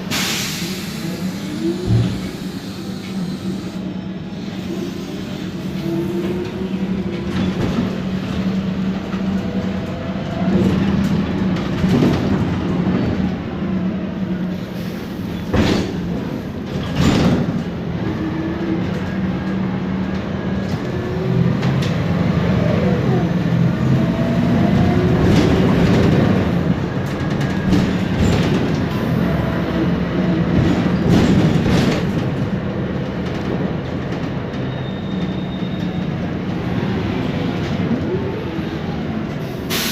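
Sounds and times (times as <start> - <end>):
bus engine humming: 0.0 - 39.9
knocks from bus body: 15.5 - 16.2.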